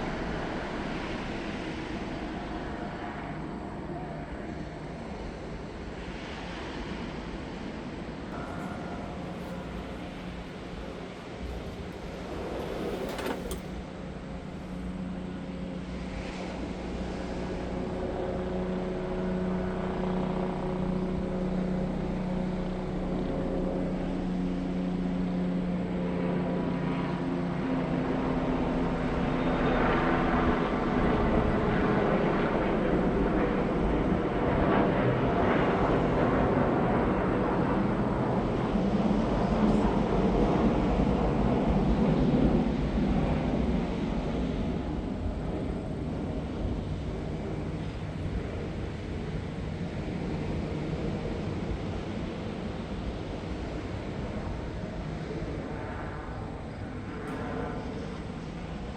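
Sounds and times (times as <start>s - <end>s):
engine drone: 8.2s - 31.1s.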